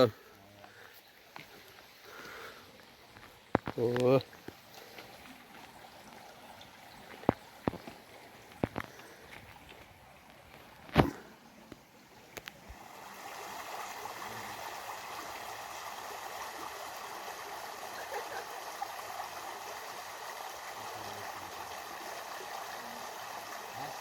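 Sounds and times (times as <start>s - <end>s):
stream water rushing: 1.1s - 24.0s.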